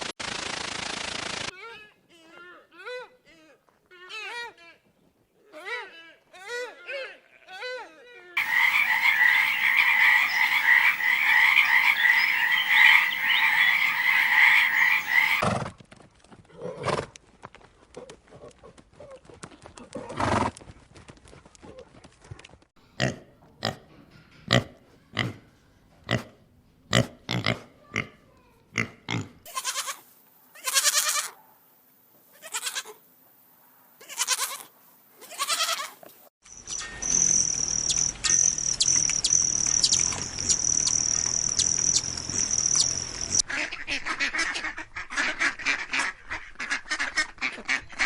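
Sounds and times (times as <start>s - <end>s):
high-pitched pulsing chirring: 8.4s - 15.4s, 36.4s - 43.4s
longer animal calls: 8.4s - 15.4s, 36.6s - 43.4s.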